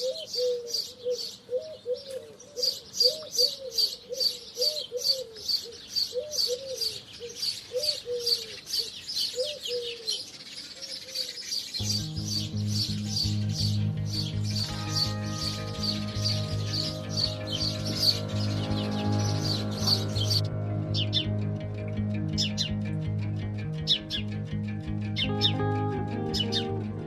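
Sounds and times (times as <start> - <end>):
sparrows chirping rapidly: 0.0 - 21.4, 22.3 - 23.0, 23.8 - 24.4, 25.1 - 25.6, 26.4 - 26.8
soft background music: 11.8 - 27.0.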